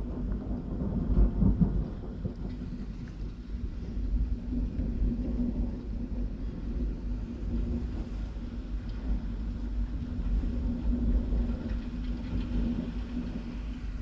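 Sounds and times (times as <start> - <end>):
low continuous rumble: 0.0 - 14.0.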